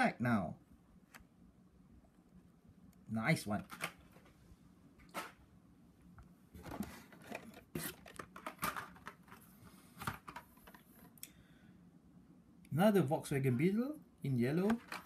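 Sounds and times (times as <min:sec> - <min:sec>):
plastic and cardboard rustling: 0:03.5 - 0:04.4, 0:06.6 - 0:11.2, 0:14.6 - 0:15.0.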